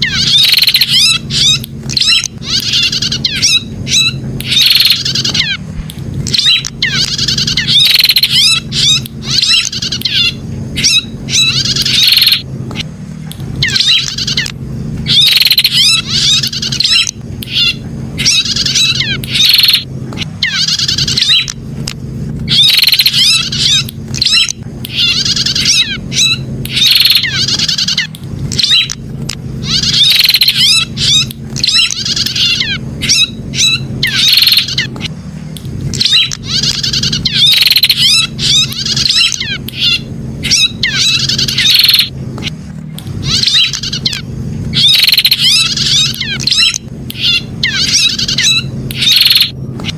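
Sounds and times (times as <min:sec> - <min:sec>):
bird warbling chirps: 0:00.0 - 0:05.6, 0:06.2 - 0:12.9, 0:13.6 - 0:21.6, 0:22.5 - 0:29.0, 0:29.6 - 0:35.1, 0:35.9 - 0:42.1, 0:43.2 - 0:49.9
steady low hum: 0:00.0 - 0:49.9.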